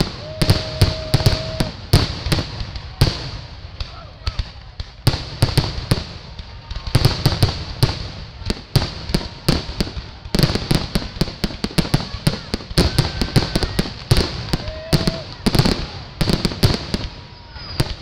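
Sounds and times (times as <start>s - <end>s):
fireworks exploding: 0.0s - 18.0s.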